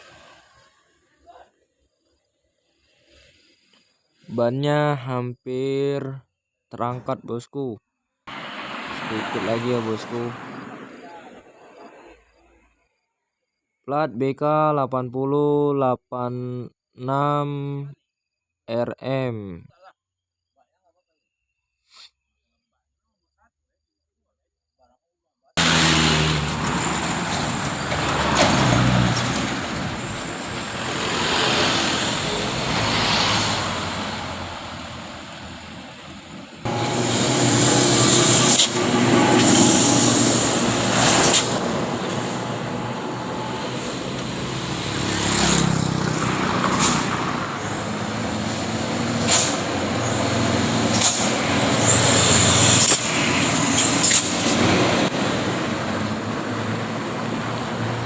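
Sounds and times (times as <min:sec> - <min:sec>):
diesel truck engines labouring: 0:08.3 - 0:12.6, 0:25.6 - 0:58.0
short high hisses: 0:21.8 - 0:22.2, 0:36.7 - 0:42.4, 0:46.7 - 0:54.4.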